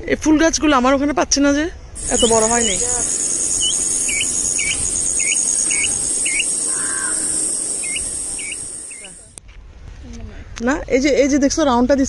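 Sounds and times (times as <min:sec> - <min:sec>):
bird whistled call: 0:02.0 - 0:09.2
high-pitched insect drone: 0:02.0 - 0:09.3
low rushing noise: 0:02.0 - 0:09.3.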